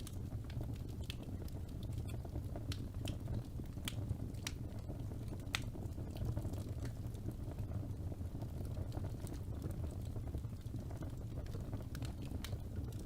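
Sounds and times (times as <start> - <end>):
fire crackling in fireplace: 0.0 - 13.0.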